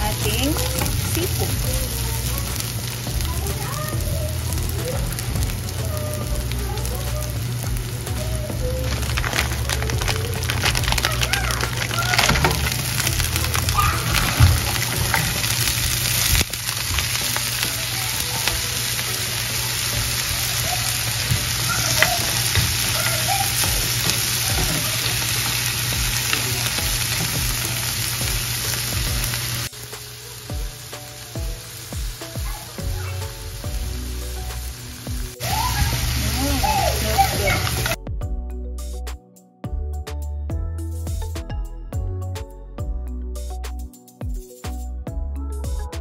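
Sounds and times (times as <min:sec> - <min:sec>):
seafood sizzling in hot oil: 0:00.0 - 0:38.0
wooden spatula stirring: 0:08.8 - 0:27.7.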